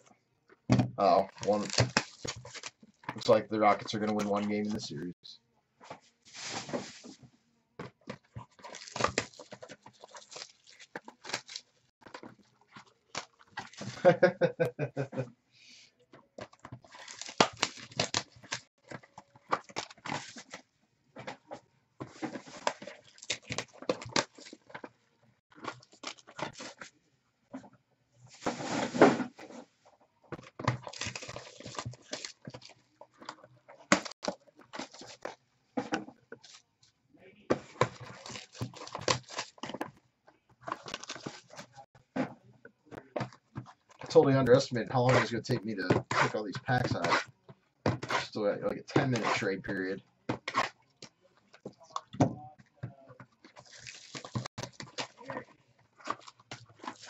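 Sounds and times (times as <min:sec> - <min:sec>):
foil packs crinkling and rustling: 0:01.0 - 0:04.8, 0:08.4 - 0:14.4, 0:16.4 - 0:20.7, 0:22.0 - 0:24.8, 0:25.6 - 0:26.9, 0:30.4 - 0:35.4, 0:37.5 - 0:39.9, 0:40.6 - 0:41.9, 0:53.4 - 0:57.0.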